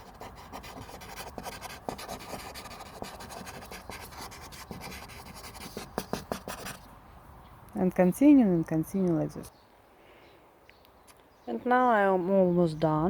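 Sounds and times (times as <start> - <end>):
charcoal scratching on paper: 0.0 - 6.8.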